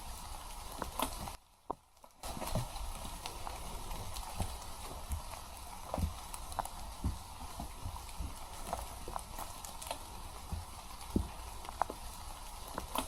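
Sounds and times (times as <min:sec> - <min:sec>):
crackles underfoot: 0:00.0 - 0:13.0
footsteps on a trail: 0:00.0 - 0:13.0.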